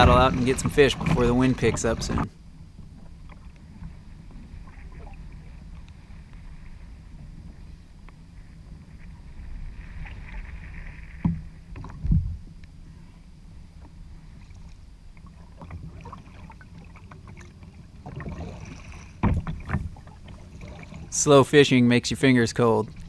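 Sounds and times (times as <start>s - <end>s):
paddle swishing water: 0.0s - 23.0s
wind and sea rumble: 0.0s - 23.0s
light clicks and splashes: 13.8s - 21.2s.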